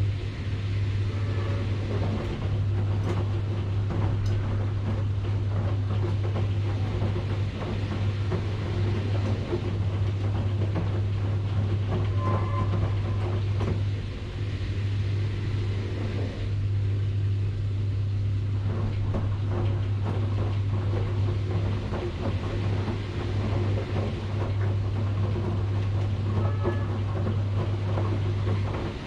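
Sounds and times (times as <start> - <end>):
washing machine motor hum: 0.0 - 29.0
water sloshing in drum: 18.1 - 29.0.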